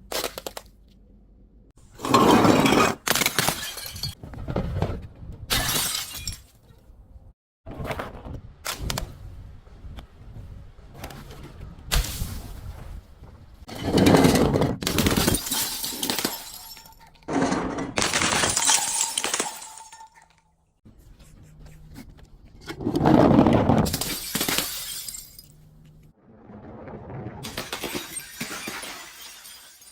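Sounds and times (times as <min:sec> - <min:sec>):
glass bottles smashing: 0:02.6 - 0:04.2, 0:05.6 - 0:06.5, 0:13.8 - 0:20.4, 0:23.8 - 0:25.6, 0:27.5 - 0:29.9.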